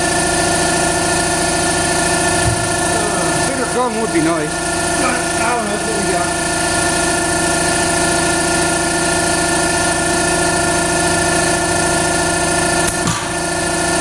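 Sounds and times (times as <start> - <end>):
power tool humming and rattling: 0.0 - 14.0.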